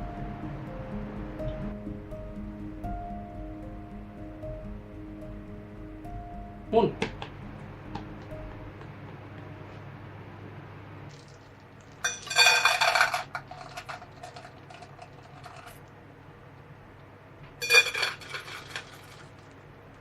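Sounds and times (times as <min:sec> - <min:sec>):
dishes and cutlery clattering: 0:12.0 - 0:15.8, 0:17.6 - 0:19.3.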